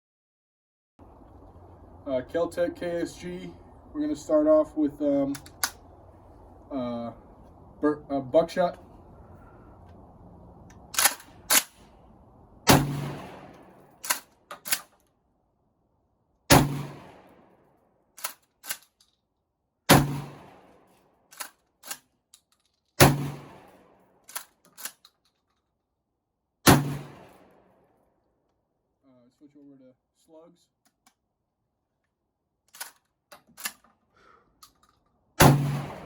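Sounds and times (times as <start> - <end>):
shotgun shots with echo: 12.7 - 13.8, 16.5 - 17.4, 19.9 - 20.7, 23.0 - 23.8, 26.6 - 27.6, 35.4 - 36.0
shotgun pump racking clacks: 18.2 - 19.1, 21.3 - 22.8, 32.7 - 33.9.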